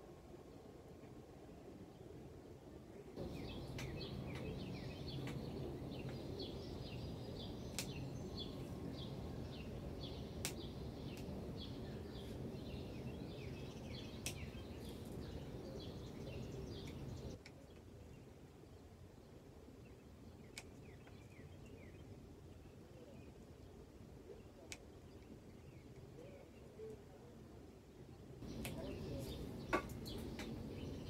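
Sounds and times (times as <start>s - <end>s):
songbirds chirping: 0.2s - 31.0s
low background rumble: 2.9s - 17.4s.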